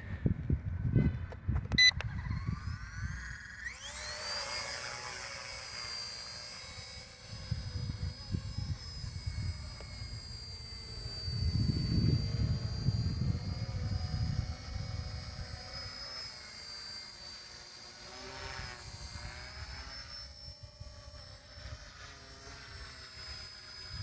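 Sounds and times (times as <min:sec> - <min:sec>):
electric motor whine: 0:00.0 - 0:24.0.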